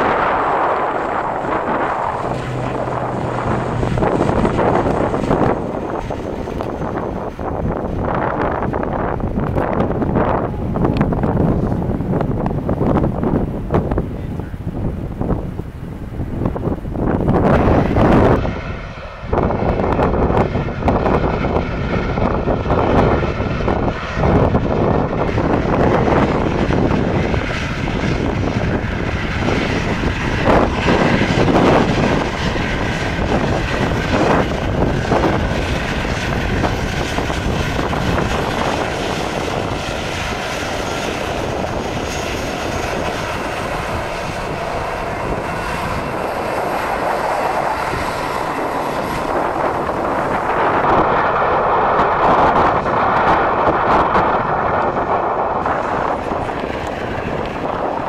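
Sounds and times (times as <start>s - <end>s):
airliner engines running: 0.0s - 58.0s.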